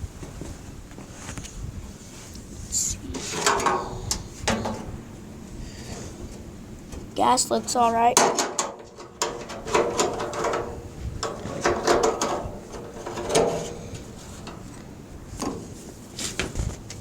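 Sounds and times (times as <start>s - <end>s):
knocks clicks and scrapes on metal: 3.1s - 5.0s, 8.2s - 17.0s.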